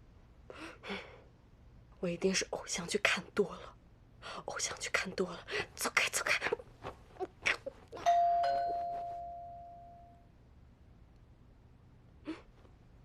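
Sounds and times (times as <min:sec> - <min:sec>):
two-note doorbell chime: 0:08.1 - 0:10.3.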